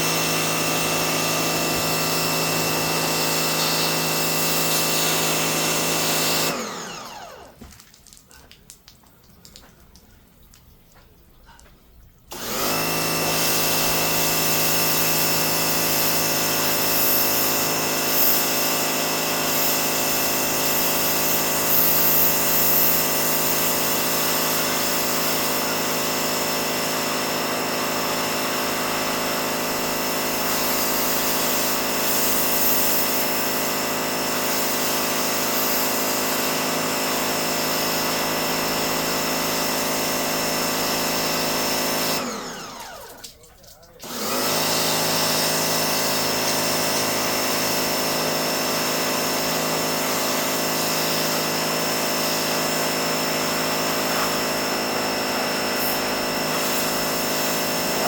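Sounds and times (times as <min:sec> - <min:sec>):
pressure washer motor whine: 0:00.0 - 0:07.6, 0:12.3 - 0:58.0
water spray hiss: 0:13.5 - 0:25.7, 0:30.3 - 0:33.7, 0:34.4 - 0:36.5, 0:55.7 - 0:58.0.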